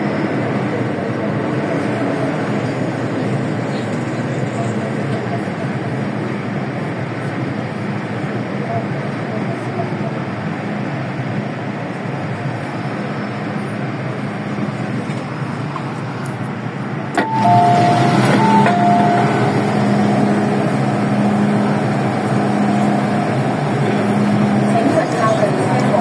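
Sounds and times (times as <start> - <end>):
train carriage running noise: 0.0 - 26.0
click: 17.1 - 20.2
electronic two-note chime: 17.2 - 21.4.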